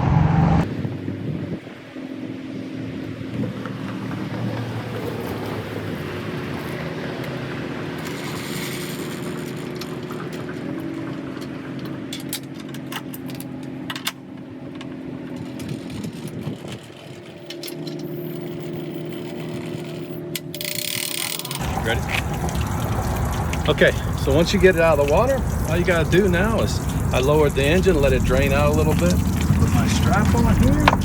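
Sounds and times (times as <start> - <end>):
vehicle engine running: 0.0 - 20.7, 21.4 - 31.0
sharp clicks and knocks: 28.1 - 31.0.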